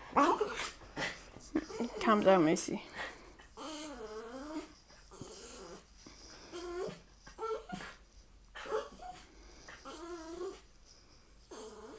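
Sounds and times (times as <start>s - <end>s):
dog whining: 3.6s - 5.9s, 6.5s - 8.0s, 8.6s - 10.6s, 11.5s - 11.9s.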